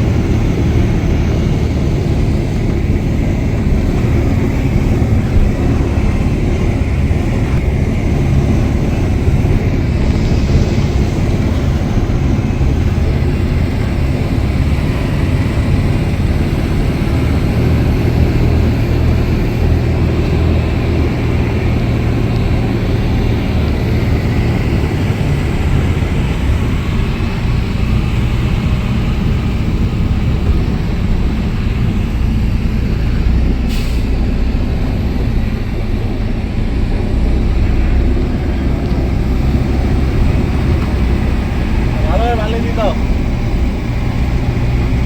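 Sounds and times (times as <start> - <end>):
truck engine droning: 0.0 - 45.0.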